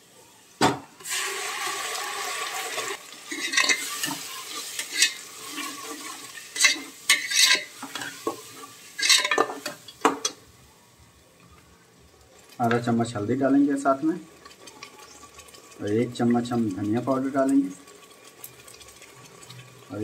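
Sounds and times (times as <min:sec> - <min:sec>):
paste sizzling in hot oil: 0:01.0 - 0:10.1, 0:12.4 - 0:20.0
metal ladle scraping a pot: 0:03.3 - 0:09.6.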